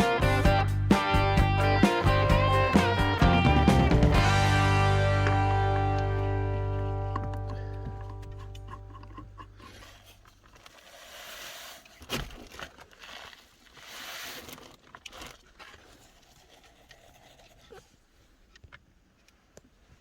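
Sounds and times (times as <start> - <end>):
background music: 0.0 - 8.9
rustling and crinkling handling noise: 6.5 - 20.0.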